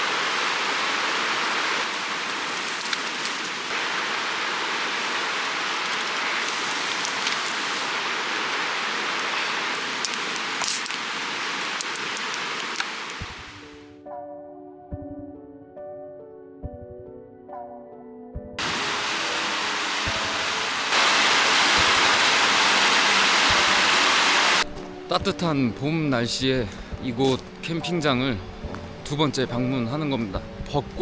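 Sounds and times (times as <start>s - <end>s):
creek water rushing: 0.0s - 13.6s, 18.6s - 24.6s.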